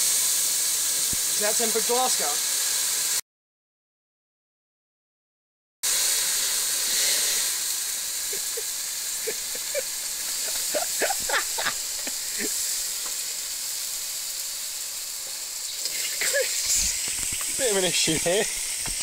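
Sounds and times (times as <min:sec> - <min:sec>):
steam hissing and sizzling: 0:00.0 - 0:03.2, 0:05.8 - 0:19.0.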